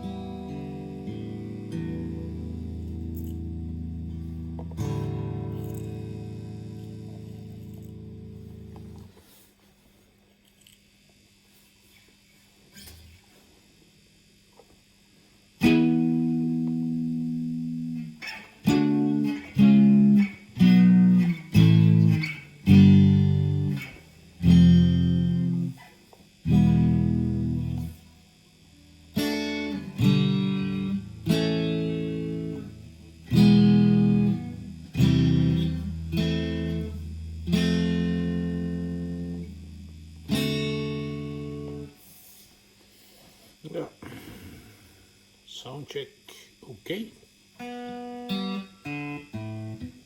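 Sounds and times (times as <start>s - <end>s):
clean guitar chords: 0.0s - 9.1s, 15.6s - 42.0s, 47.6s - 50.0s.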